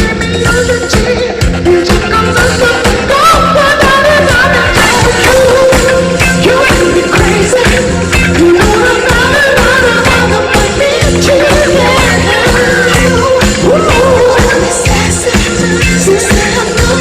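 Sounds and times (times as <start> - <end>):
band with steady beat: 0.0 - 17.0
man singing long notes: 8.5 - 17.0.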